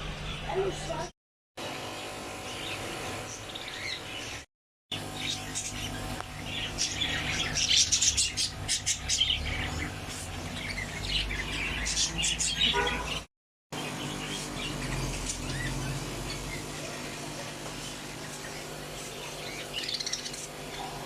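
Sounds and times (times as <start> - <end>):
cage birds chirping: 0.0 - 21.0.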